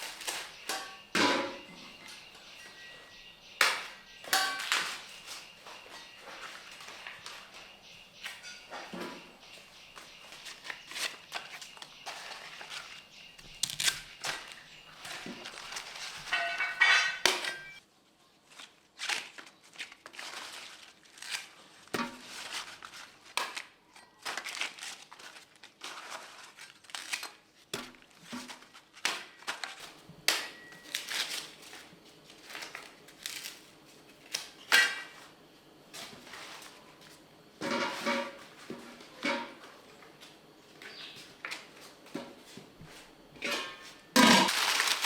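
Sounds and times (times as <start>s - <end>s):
dry corn husks crunching and rustling: 0.0s - 1.0s, 9.5s - 17.6s, 18.3s - 35.3s, 43.9s - 45.0s.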